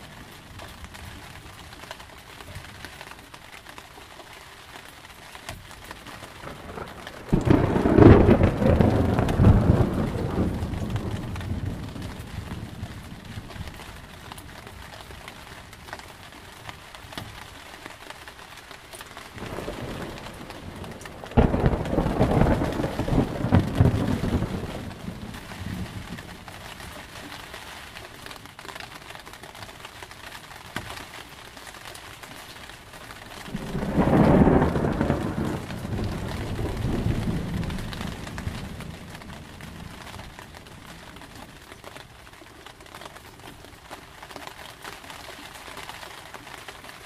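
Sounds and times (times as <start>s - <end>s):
steady rain: 0.0s - 47.0s
thunder rumbling and cracking: 6.1s - 15.3s, 19.3s - 27.1s, 33.1s - 41.7s.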